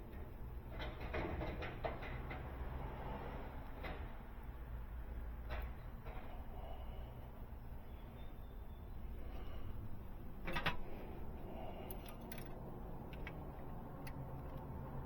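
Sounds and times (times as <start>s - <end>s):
hand tools clicking against metal: 11.7s - 14.8s.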